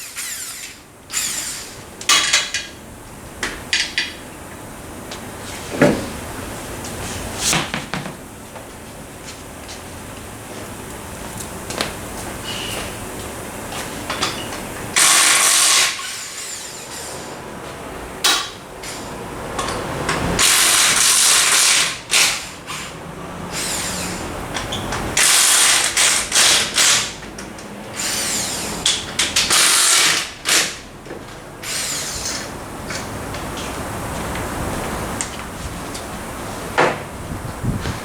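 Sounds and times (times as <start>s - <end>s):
power wrench bursts: 0.0s - 2.7s, 14.9s - 17.3s, 18.2s - 27.2s, 28.0s - 30.9s, 31.6s - 32.5s.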